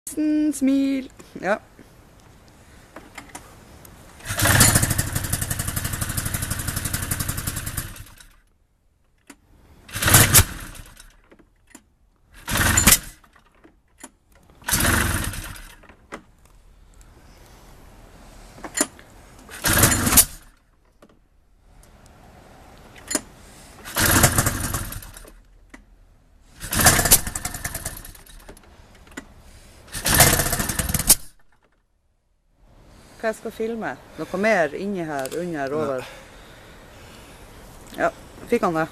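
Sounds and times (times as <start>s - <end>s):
snowmobile engine cranking: 4.2s - 8.4s, 9.8s - 11.3s, 12.3s - 16.2s, 18.7s - 20.6s, 23.0s - 25.5s, 26.5s - 31.4s.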